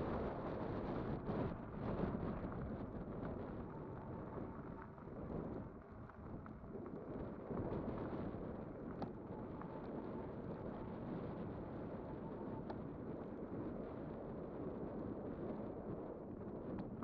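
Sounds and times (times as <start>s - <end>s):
wind buffeting microphone: 0.0s - 17.0s
faint ticks: 1.9s - 11.5s.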